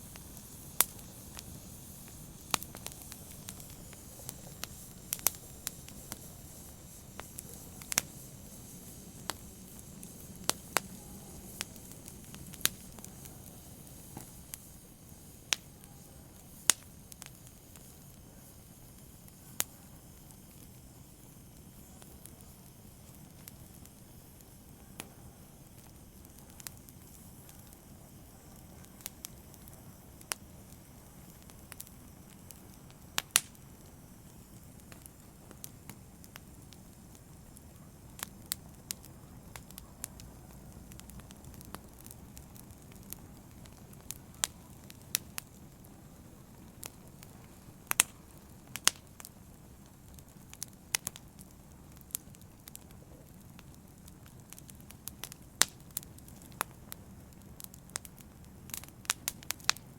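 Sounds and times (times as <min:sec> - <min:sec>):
fire crackling and popping: 0:00.0 - 0:59.9
flames rustling: 0:00.0 - 0:59.9.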